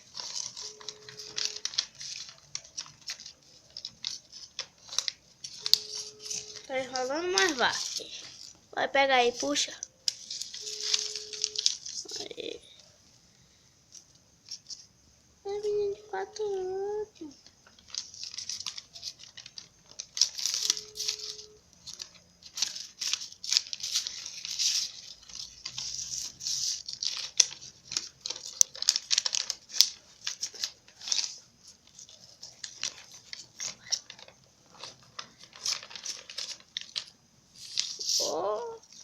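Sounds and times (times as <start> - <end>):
paper crinkling and rustling: 0.0 - 12.9, 15.6 - 39.0.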